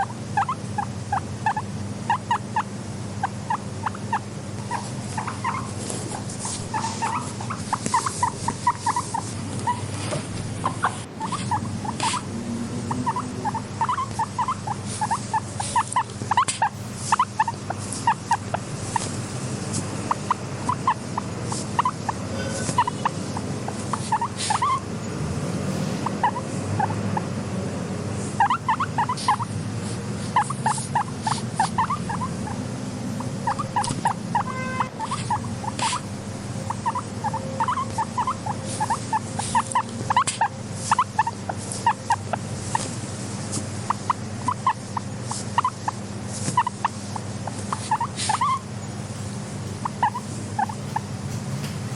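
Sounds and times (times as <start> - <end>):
guinea pigs squeaking: 0.0 - 51.9.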